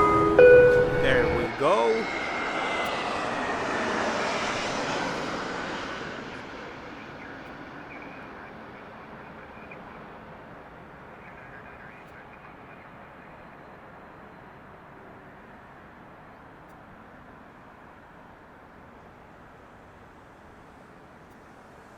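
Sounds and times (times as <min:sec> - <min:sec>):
jet aircraft passing: 0:00.0 - 0:13.9.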